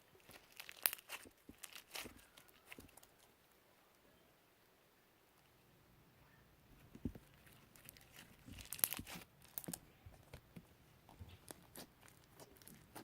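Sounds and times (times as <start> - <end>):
slime crackling and popping: 0.2 - 3.3, 7.4 - 9.8, 11.4 - 13.0.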